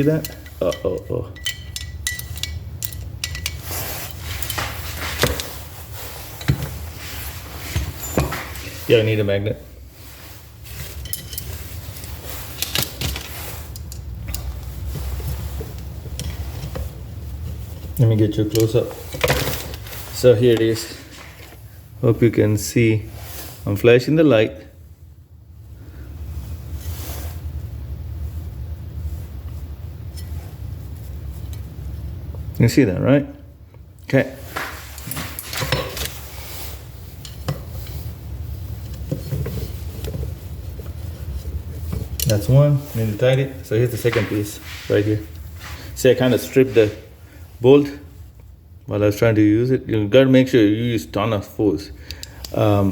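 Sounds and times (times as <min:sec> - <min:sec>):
metal parts clicking and scraping: 0:00.0 - 0:05.6, 0:10.7 - 0:20.2, 0:34.9 - 0:36.4, 0:41.2 - 0:42.5
low steady rumble: 0:00.0 - 0:35.0, 0:36.0 - 0:50.1
metal parts clicking and knocking: 0:00.1 - 0:05.5.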